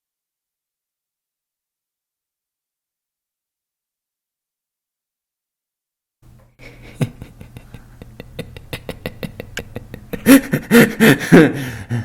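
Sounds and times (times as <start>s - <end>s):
person laughing: 6.6s - 12.0s.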